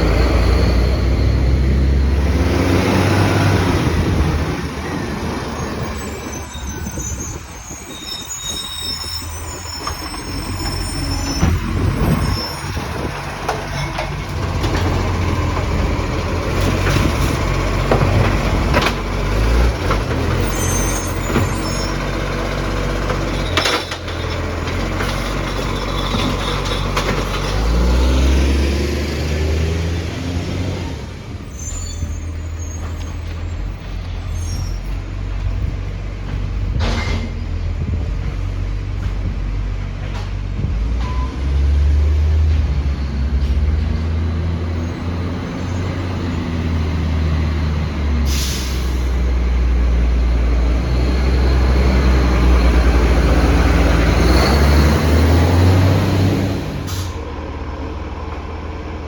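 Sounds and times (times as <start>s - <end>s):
diesel engine revving: 0.0s - 59.0s
high squeals: 4.8s - 13.1s, 20.4s - 22.1s, 31.5s - 35.0s
sharp knocks from truck and bins: 16.6s - 20.4s, 36.2s - 41.3s.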